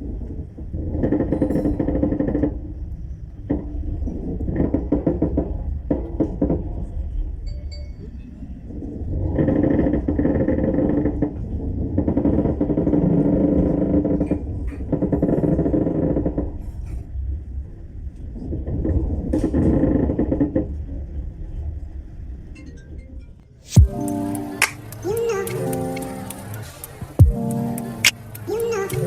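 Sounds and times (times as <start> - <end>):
clicks: 23.7 - 29.0.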